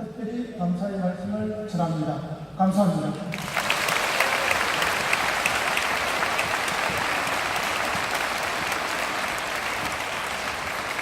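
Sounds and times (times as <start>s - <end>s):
large crowd applauding: 3.3s - 11.0s.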